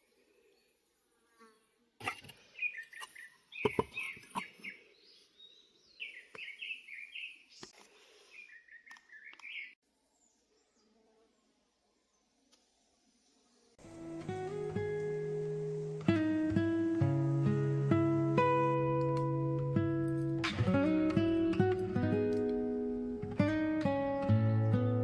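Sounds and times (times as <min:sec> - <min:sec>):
small bird chirping: 0:02.5 - 0:07.7, 0:08.3 - 0:09.8.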